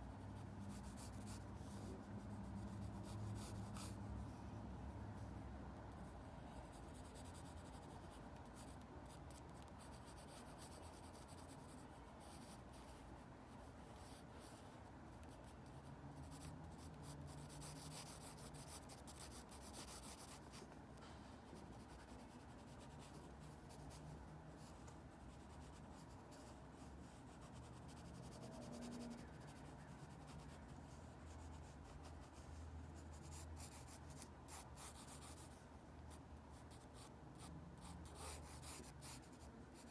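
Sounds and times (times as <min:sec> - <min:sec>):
low steady hum: 0:00.0 - 0:39.9
drawing tool scratching on paper: 0:16.2 - 0:20.6, 0:27.2 - 0:30.5, 0:33.2 - 0:35.6, 0:36.5 - 0:39.9.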